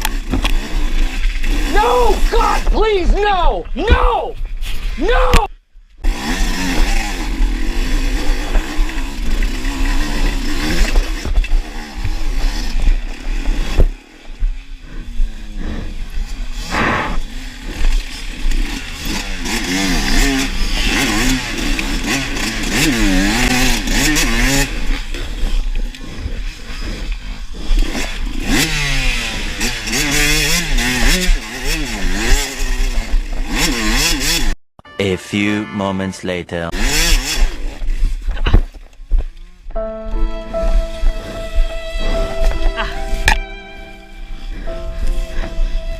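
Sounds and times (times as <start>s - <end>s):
dirt bike engine revving: 0.0s - 2.8s, 6.0s - 34.6s, 36.7s - 38.3s.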